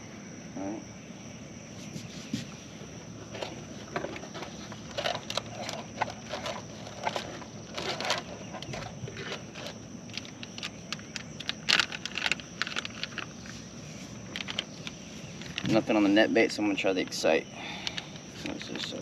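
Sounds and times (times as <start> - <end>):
crickets trilling: 0.0 - 19.0
knocks and scrapes of handling: 1.8 - 15.9.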